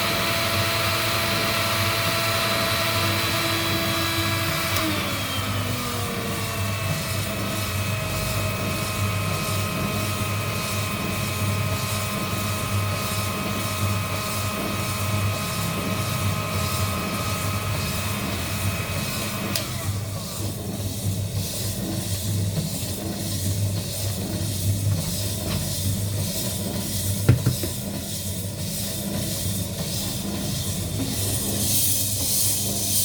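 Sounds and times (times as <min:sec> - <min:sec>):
blower motor whine: 0:00.0 - 0:20.7.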